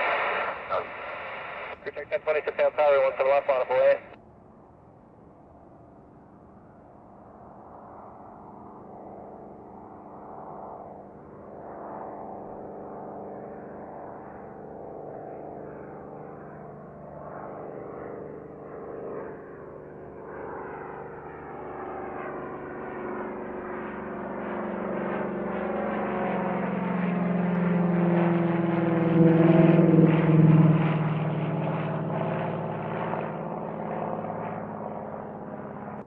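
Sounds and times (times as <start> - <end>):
airplane passing by: 0.0 - 36.0.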